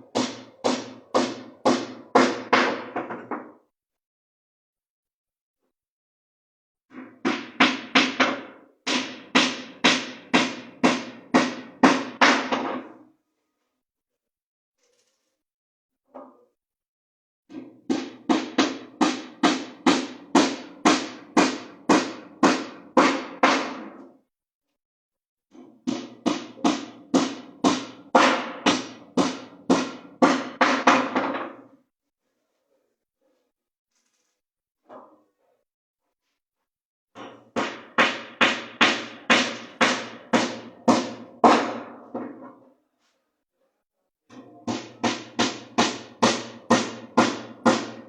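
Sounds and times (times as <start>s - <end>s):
hammer striking wood: 0.1s - 3.6s, 6.9s - 13.0s, 17.5s - 24.1s, 25.6s - 31.7s, 37.2s - 42.6s, 44.3s - 48.0s
hammer blows on wood: 44.7s - 48.0s.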